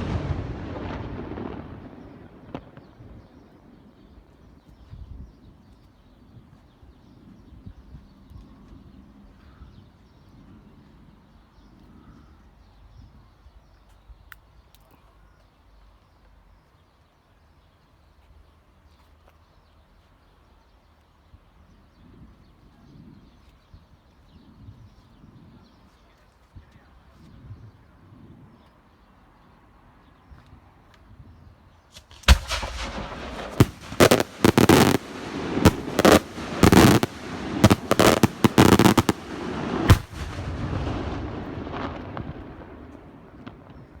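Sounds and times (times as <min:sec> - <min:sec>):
echoing rumble: 0:00.0 - 0:03.7, 0:32.2 - 0:44.0
fireworks banging and crackling: 0:00.0 - 0:03.9, 0:31.9 - 0:44.0.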